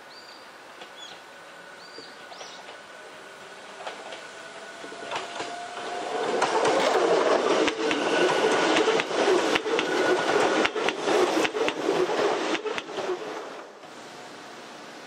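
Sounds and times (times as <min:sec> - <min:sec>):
faint hiss: 0:00.0 - 0:04.8, 0:13.1 - 0:15.0
train wheels rumbling and clacking: 0:00.7 - 0:14.0.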